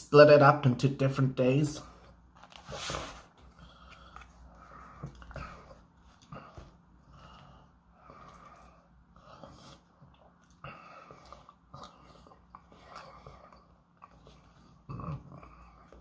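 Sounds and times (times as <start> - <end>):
chewing and mouth sounds: 8.1 - 16.0.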